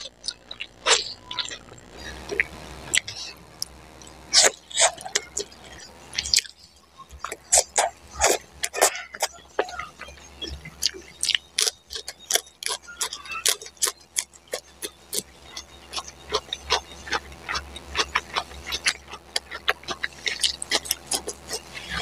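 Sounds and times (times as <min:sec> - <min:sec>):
crisp lettuce chewing crunches: 0:00.0 - 0:22.0.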